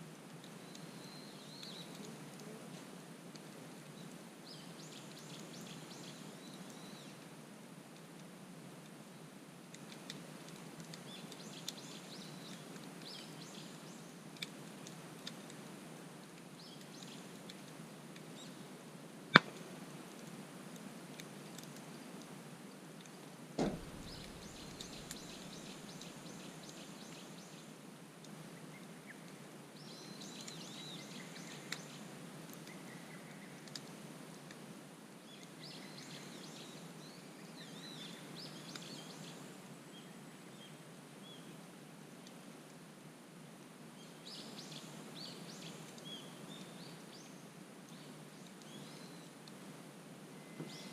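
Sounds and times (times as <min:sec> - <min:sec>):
small birds chirping: 0:00.4 - 0:02.8, 0:03.8 - 0:07.2, 0:09.9 - 0:14.5, 0:16.5 - 0:18.7, 0:23.1 - 0:27.8, 0:28.4 - 0:34.0, 0:35.2 - 0:41.5, 0:44.0 - 0:49.5, 0:50.4 - 0:50.9
campfire crackling and popping: 0:01.5 - 0:05.7, 0:09.6 - 0:27.3, 0:33.5 - 0:34.8
dull thump: 0:23.6 - 0:24.4.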